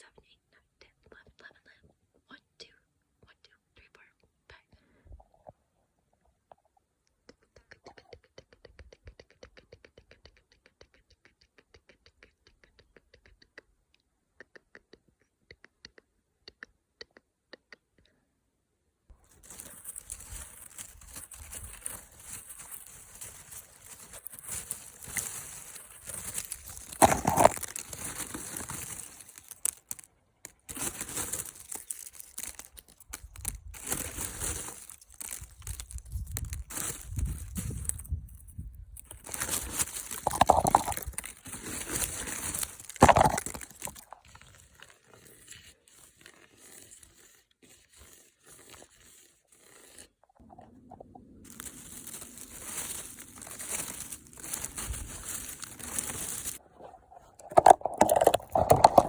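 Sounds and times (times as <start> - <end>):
crinkling and crunching: 19.1 - 49.2, 51.4 - 59.0.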